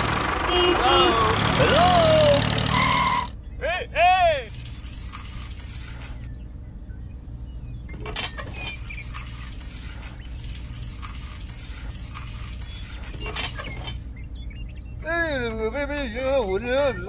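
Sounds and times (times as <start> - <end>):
steady low hum: 3.3 - 17.0
light metallic jingling: 4.4 - 6.4, 8.1 - 14.3.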